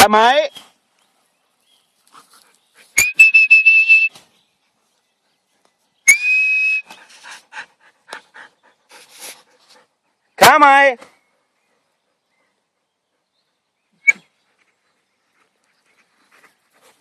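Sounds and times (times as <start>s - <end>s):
loud whistle calls: 3.0s - 4.2s, 6.1s - 7.0s.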